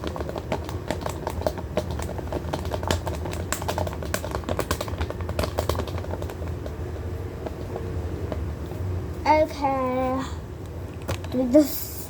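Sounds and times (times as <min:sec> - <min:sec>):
plastic tablet case clicking and tapping: 0:00.0 - 0:06.4
steady low hum: 0:00.0 - 0:12.0.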